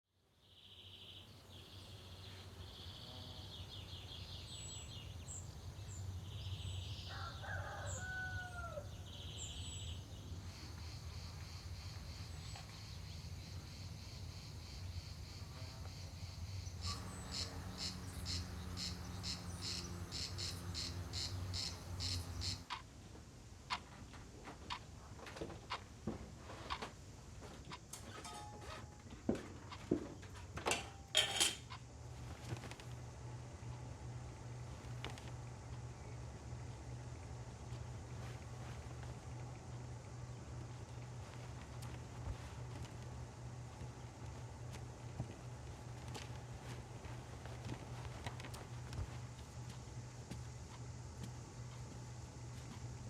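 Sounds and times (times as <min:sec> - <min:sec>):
small birds chirping: 0:00.4 - 0:22.7
cicadas buzzing in pulses: 0:01.3 - 0:22.8, 0:31.4 - 0:53.0
rooster crowing: 0:07.0 - 0:09.1.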